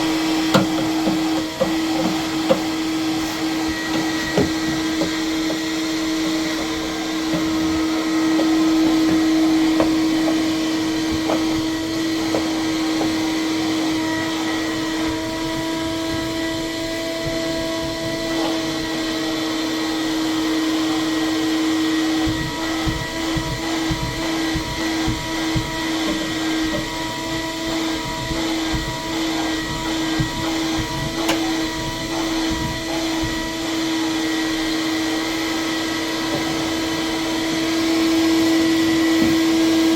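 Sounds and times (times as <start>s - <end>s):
vacuum cleaner running: 0.0s - 39.9s
low bumps and knocks: 0.2s - 18.3s, 22.2s - 33.4s.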